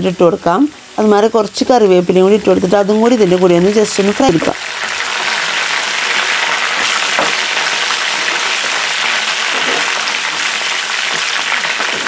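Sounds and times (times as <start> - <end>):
vegetables sizzling in hot oil: 0.0 - 12.0
spoon scraping a pan: 6.7 - 12.0.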